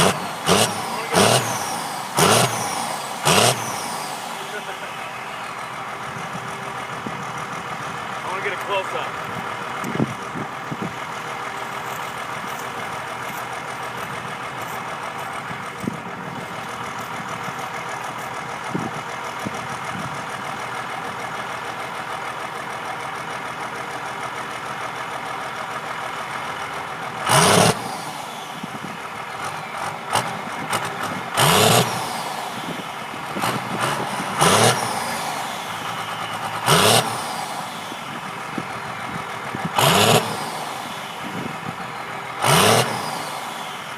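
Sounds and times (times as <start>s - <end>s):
diesel engine idling and revving: 0.0s - 43.9s.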